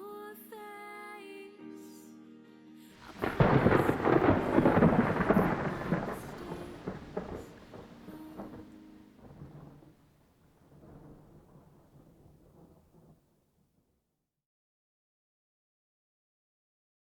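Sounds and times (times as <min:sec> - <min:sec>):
thunder rolling: 0:03.0 - 0:10.0, 0:10.6 - 0:13.1.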